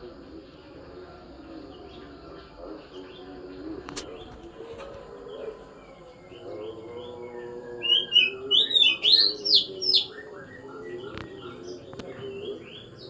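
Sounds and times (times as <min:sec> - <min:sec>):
bird singing chirps and whistles: 0:07.7 - 0:13.0.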